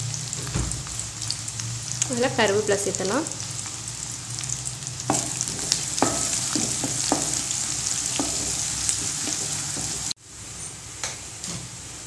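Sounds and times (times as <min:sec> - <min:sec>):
vegetables sizzling in hot oil: 0:00.0 - 0:10.2
wooden spatula knocking pan: 0:05.1 - 0:10.2.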